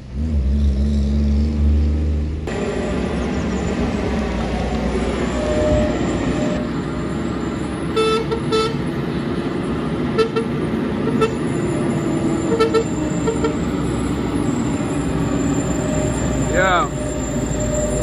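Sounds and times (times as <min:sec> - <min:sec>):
heavy truck engine rumbling: 0:00.0 - 0:18.0
vehicle horn toots: 0:07.9 - 0:08.9, 0:10.1 - 0:11.5, 0:12.4 - 0:13.8.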